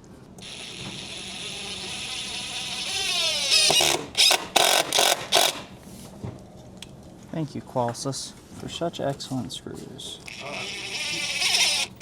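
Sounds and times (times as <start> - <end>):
power drill whining: 0.4 - 5.6, 10.3 - 12.0.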